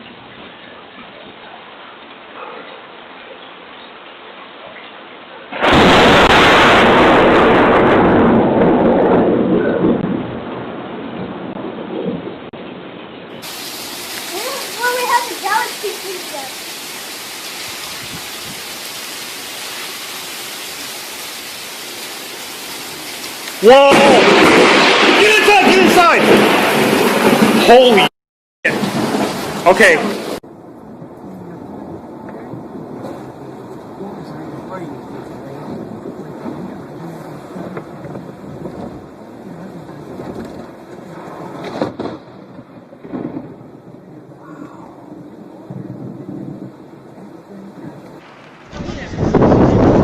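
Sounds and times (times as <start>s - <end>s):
wind: 0.0s - 50.0s
heavy rain hissing: 0.1s - 9.1s, 13.3s - 28.1s, 28.7s - 50.0s
thunder crack: 5.5s - 12.7s, 23.5s - 47.1s, 48.0s - 50.0s.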